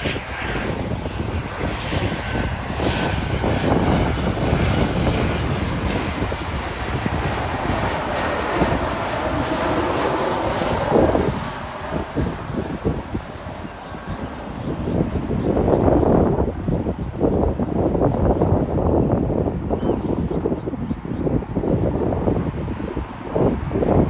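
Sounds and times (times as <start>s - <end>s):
airplane engines roaring: 0.0s - 24.0s.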